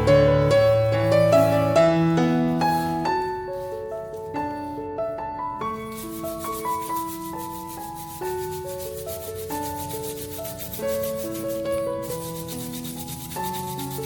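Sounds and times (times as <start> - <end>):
soft piano music: 0.0 - 14.0
scrubbing and rubbing: 2.3 - 4.7, 5.8 - 14.0.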